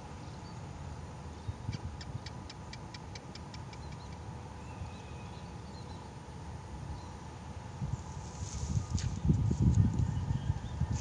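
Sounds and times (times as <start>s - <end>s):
wind rumble on microphone: 1.4s - 2.3s, 7.7s - 11.0s.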